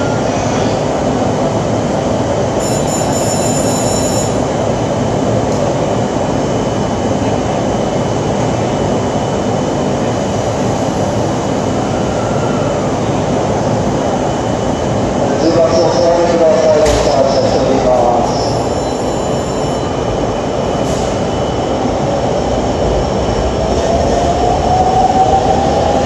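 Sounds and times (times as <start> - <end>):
high-pitched train squeal: 0.0 - 0.9, 2.6 - 4.5, 11.8 - 13.1, 18.2 - 20.2
electric train rumbling: 0.0 - 26.0.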